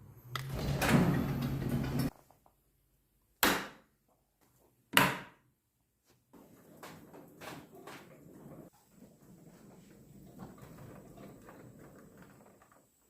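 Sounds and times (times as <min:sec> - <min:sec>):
door sliding and rumbling: 0:00.1 - 0:02.1, 0:06.4 - 0:13.0
door banging: 0:00.5 - 0:02.1.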